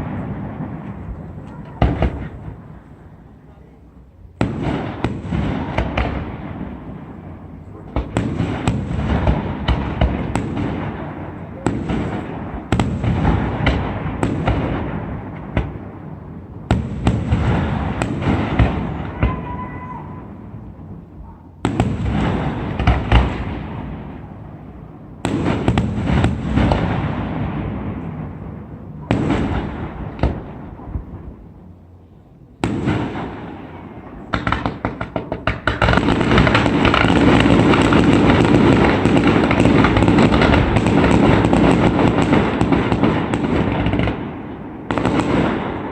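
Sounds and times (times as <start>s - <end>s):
rapid fireworks pops: 0.0s - 2.7s, 4.4s - 6.9s, 7.8s - 15.8s, 16.7s - 19.6s, 21.6s - 24.0s, 25.2s - 27.7s, 29.0s - 31.2s, 34.1s - 45.9s
rolling echo of bangs: 4.4s - 7.2s, 7.9s - 16.0s, 25.2s - 31.2s, 32.6s - 45.9s.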